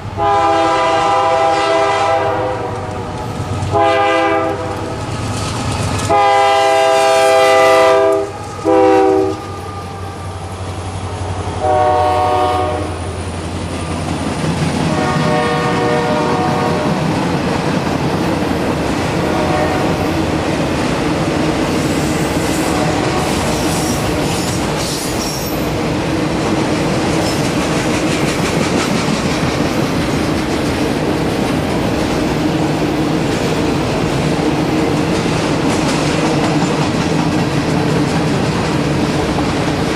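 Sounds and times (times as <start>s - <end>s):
locomotive horn blasts: 0.2s - 3.1s, 3.7s - 4.9s, 6.1s - 10.1s, 11.6s - 13.0s, 14.9s - 17.0s, 19.2s - 20.0s, 22.7s - 23.4s
wheels clacking over rail joints: 2.8s - 6.5s, 20.2s - 39.9s.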